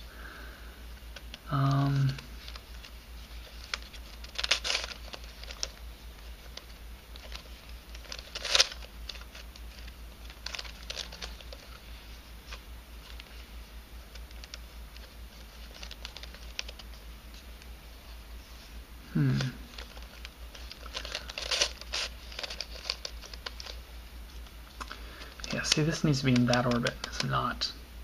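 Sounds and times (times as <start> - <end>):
plastic puzzle clicking and scraping: 1.1 - 5.8, 6.4 - 11.8, 14.1 - 17.0, 19.3 - 23.8, 24.4 - 27.4
puzzle pieces clattering: 20.8 - 23.7.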